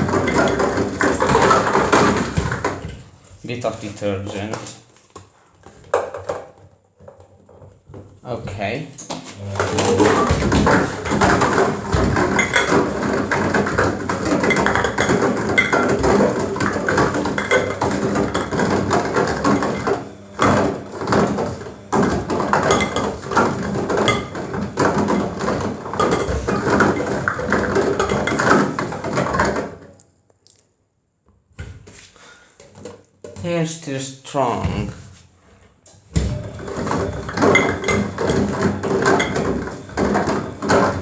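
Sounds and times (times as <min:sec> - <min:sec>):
washing machine drum turning: 0:00.0 - 0:03.0, 0:09.4 - 0:29.8, 0:36.1 - 0:41.0
carton clattering in drum: 0:00.0 - 0:04.8, 0:05.8 - 0:29.9, 0:36.2 - 0:41.0.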